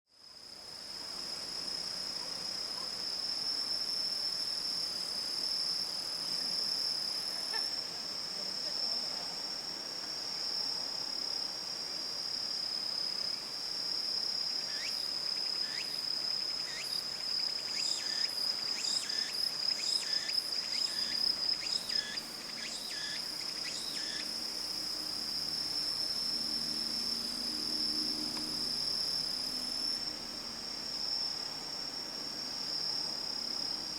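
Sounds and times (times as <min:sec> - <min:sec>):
insects trilling: 0:00.2 - 0:33.9.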